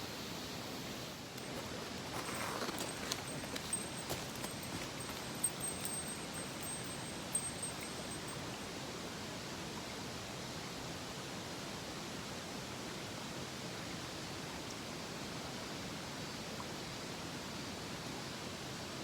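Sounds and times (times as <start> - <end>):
mountain stream rushing: 1.3 - 8.6.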